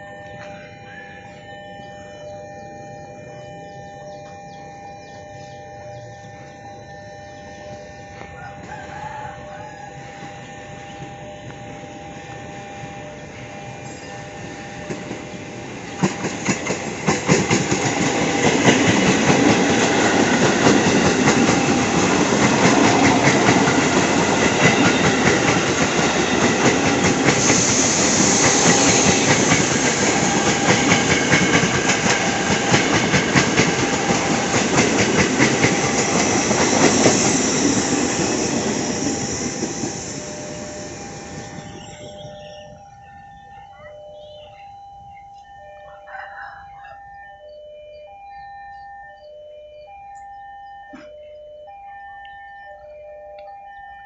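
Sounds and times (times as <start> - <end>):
train wheels clattering over rails: 14.8 - 42.0.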